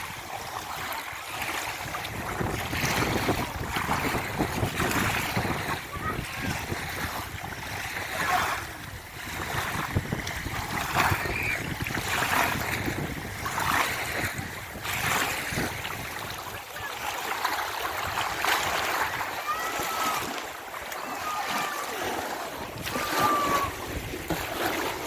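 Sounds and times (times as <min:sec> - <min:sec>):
sea waves washing on shore: 0:00.0 - 0:25.0
wind buffeting microphone: 0:00.0 - 0:25.0
faint voices calling: 0:18.8 - 0:24.0.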